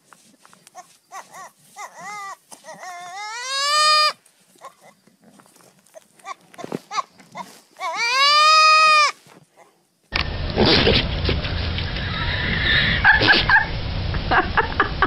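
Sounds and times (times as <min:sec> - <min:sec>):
young goat bleating: 0:00.8 - 0:05.0, 0:06.0 - 0:09.2.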